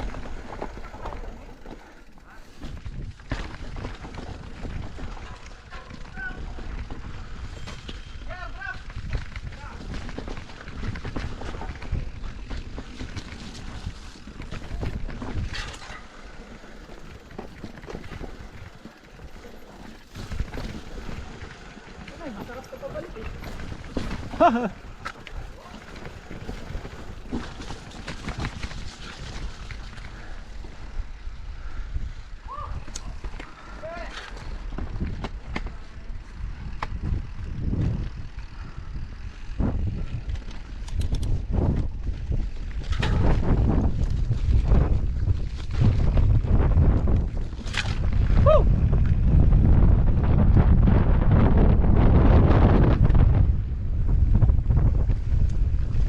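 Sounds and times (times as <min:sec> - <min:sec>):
bike knocks and rattles: 0:00.0 - 0:30.9, 0:32.5 - 0:38.8, 0:39.4 - 0:49.8
wind buffeting microphone: 0:02.6 - 0:56.0
sharp clicks: 0:40.3 - 0:41.4.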